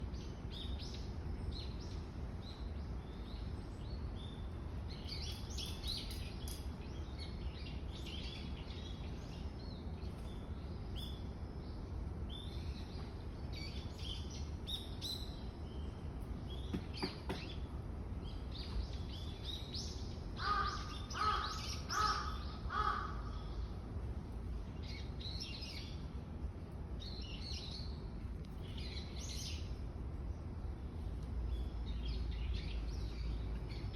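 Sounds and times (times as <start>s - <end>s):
small birds chirping: 0.0s - 33.9s
steady low rumble: 17.6s - 33.9s
crow cawing: 20.4s - 23.6s.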